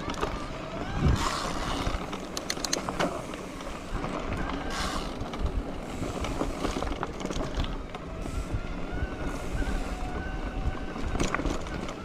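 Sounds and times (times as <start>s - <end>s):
wind buffeting microphone: 0.0s - 2.1s, 3.8s - 12.0s
bike rattling on dirt trail: 0.0s - 12.0s
small clicks and knocks: 2.0s - 3.2s.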